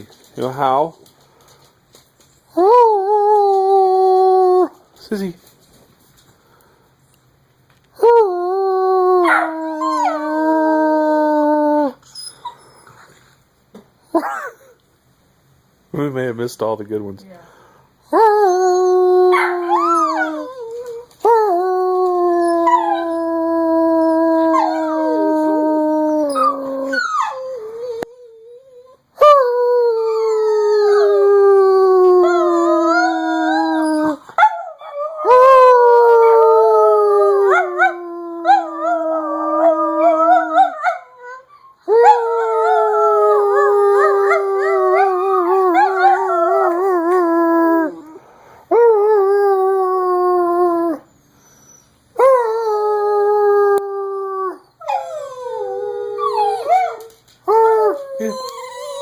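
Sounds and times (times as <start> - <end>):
dogs howling: 22.0 - 29.4, 30.0 - 48.2.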